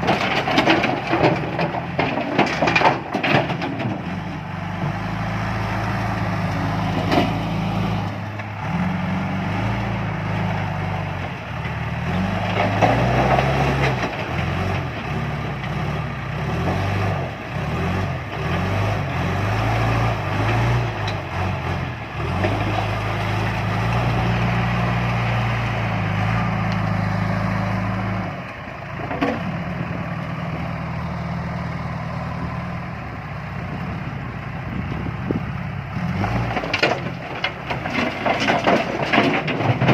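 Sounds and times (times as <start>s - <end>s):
diesel engine under load: 0.0s - 39.9s.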